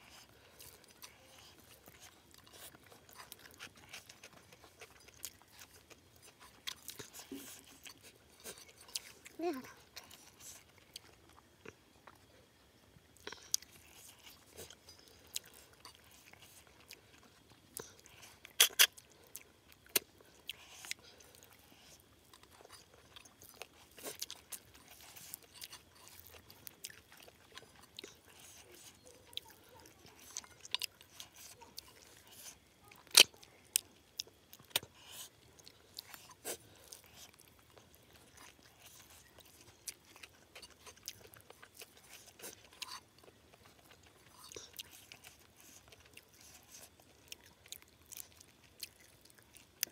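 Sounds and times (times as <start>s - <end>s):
chewing and mouth noises: 0.0s - 49.9s.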